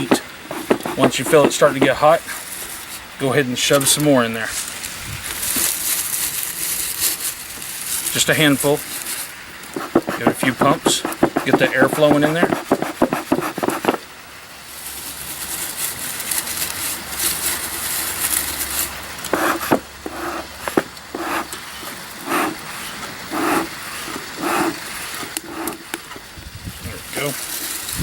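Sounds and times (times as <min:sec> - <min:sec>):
bellows puffing air: 0:00.0 - 0:03.0, 0:19.3 - 0:25.9
hiss with fine crackling: 0:00.0 - 0:28.0.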